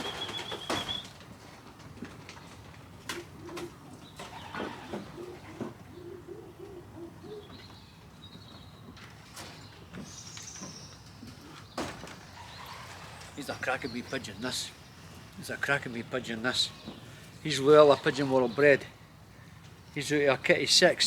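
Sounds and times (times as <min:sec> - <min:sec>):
pigeons cooing: 0:00.0 - 0:01.1, 0:02.8 - 0:07.8, 0:11.2 - 0:15.2, 0:15.8 - 0:19.5.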